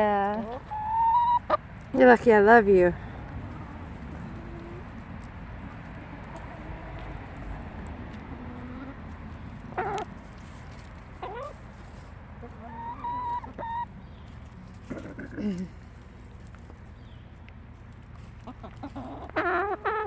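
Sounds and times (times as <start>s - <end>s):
hens clucking and calling: 0.3s - 1.8s, 3.4s - 15.4s, 18.3s - 20.0s.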